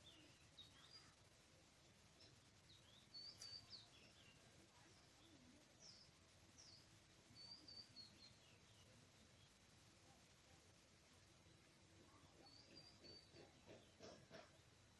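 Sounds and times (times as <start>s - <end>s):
quiet background hiss: 0.0s - 14.9s
faint bird calls: 11.6s - 14.9s.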